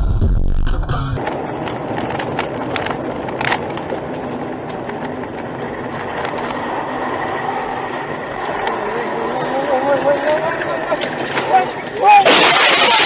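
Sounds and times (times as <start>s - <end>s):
vehicle road and tyre noise: 1.2s - 13.0s.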